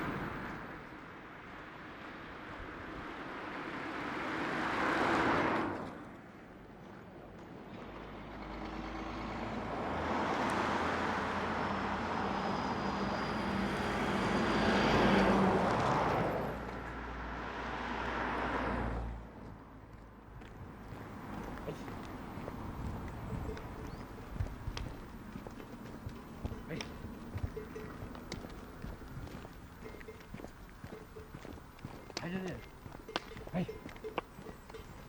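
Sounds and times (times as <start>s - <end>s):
road vehicles passing: 0.0s - 35.0s
low engine hum: 19.9s - 35.0s.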